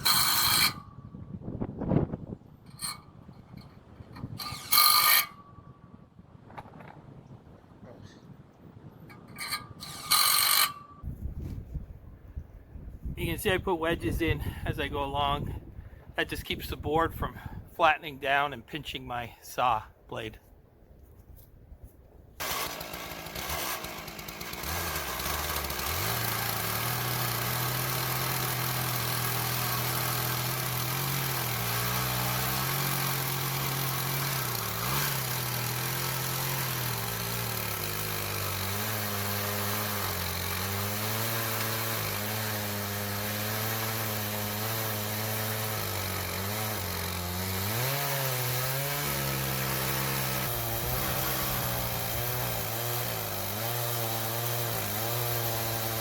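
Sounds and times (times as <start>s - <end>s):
chainsaw cutting log: 0.0s - 1.0s, 2.7s - 5.4s, 9.1s - 11.1s, 22.4s - 56.0s.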